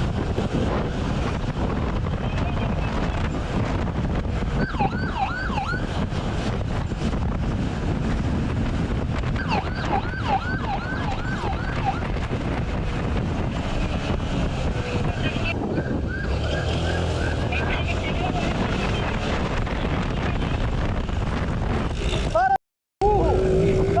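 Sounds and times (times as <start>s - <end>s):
wind on microphone: 0.0s - 24.0s
police siren yelps: 4.6s - 5.9s, 9.3s - 12.1s, 15.7s - 17.6s.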